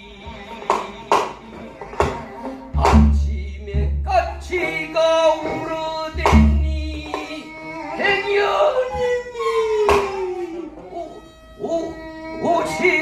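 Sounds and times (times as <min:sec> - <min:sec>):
sharp drum strokes: 0:02.8 - 0:04.6.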